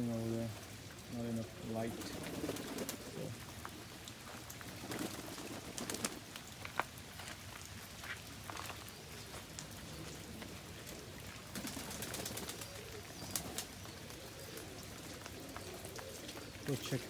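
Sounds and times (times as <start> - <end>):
pigeons cooing: 1.2 - 4.0, 8.9 - 17.0
wings flapping: 1.9 - 3.3, 4.6 - 6.4, 10.0 - 17.0.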